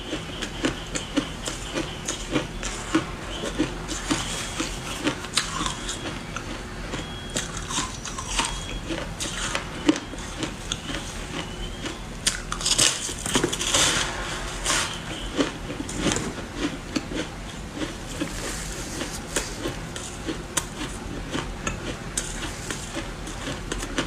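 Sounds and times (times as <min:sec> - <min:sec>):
person crunching ice: 0:03.9 - 0:06.1, 0:07.0 - 0:08.6, 0:12.2 - 0:17.2.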